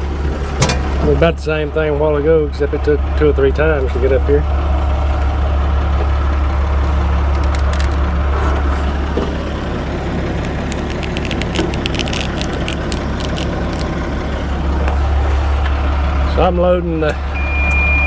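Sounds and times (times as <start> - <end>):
tractor engine running: 0.0 - 18.0
metal clanks and rattles: 0.3 - 1.2.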